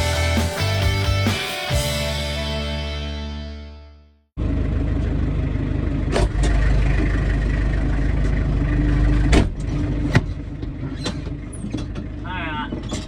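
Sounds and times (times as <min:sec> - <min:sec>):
tractor engine droning: 0:04.4 - 0:13.0.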